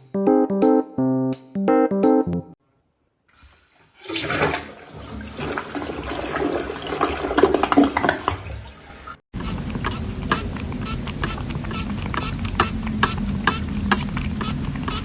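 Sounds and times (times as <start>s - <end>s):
toilet flushing: 3.8s - 15.0s.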